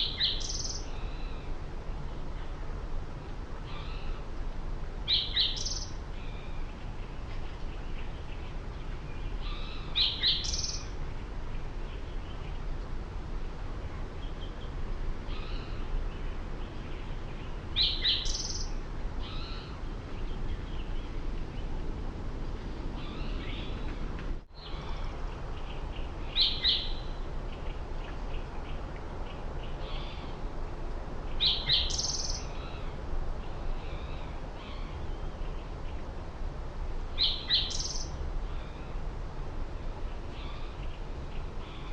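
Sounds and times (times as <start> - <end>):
small birds chirping: 0.0 - 1.5, 5.1 - 12.8, 14.0 - 21.8, 23.0 - 30.4, 31.2 - 36.2, 37.2 - 39.0
low background rumble: 0.0 - 41.9.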